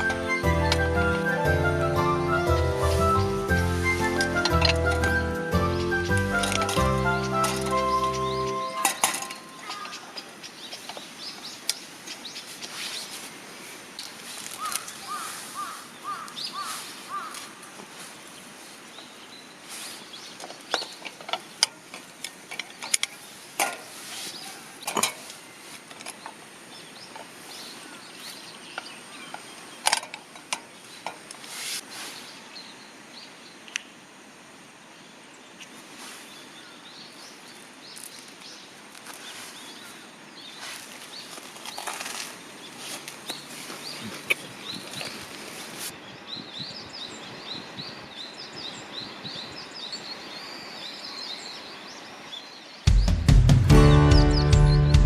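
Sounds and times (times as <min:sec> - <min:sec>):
bird call: 0:00.0 - 0:11.4, 0:14.6 - 0:17.6
steady rushing hiss: 0:00.0 - 0:46.1.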